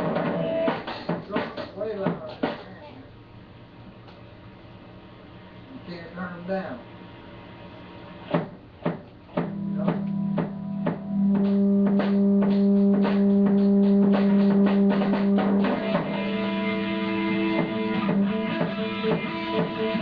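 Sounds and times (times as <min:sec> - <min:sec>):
drum kit steady beat: 0:00.0 - 0:03.0, 0:08.2 - 0:20.0
electric guitar sustained notes: 0:09.4 - 0:20.0.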